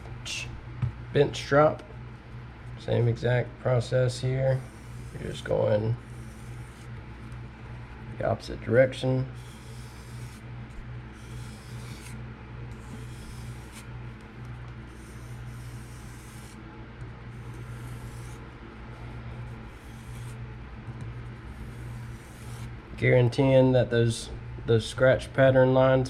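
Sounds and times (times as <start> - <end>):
steady low hum: 0.0 - 26.0
knife stropped on leather: 4.6 - 7.0, 11.2 - 12.2, 12.8 - 13.9, 14.9 - 16.6, 19.6 - 20.4.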